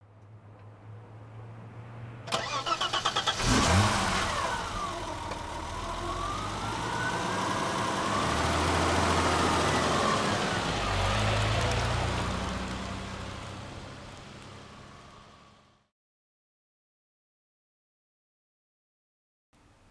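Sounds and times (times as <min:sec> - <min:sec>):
car engine cranking and starting: 0:02.3 - 0:14.6
car engine running: 0:03.2 - 0:15.6.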